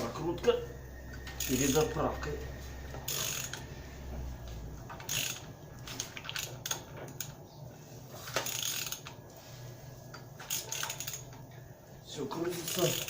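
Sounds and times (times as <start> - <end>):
ratchet wrench clicking: 1.2 - 2.0, 3.0 - 3.7, 4.9 - 5.5, 8.4 - 9.2, 10.4 - 11.4, 12.6 - 13.0.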